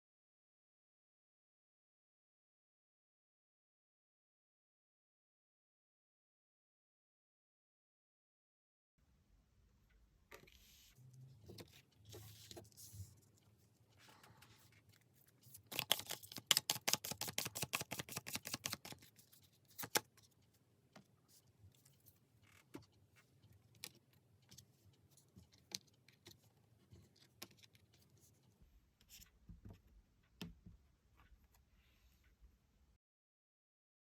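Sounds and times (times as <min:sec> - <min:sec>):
cards being shuffled: 0:14.8 - 0:20.1
cards clicking and tapping: 0:15.7 - 0:19.1, 0:19.7 - 0:20.1.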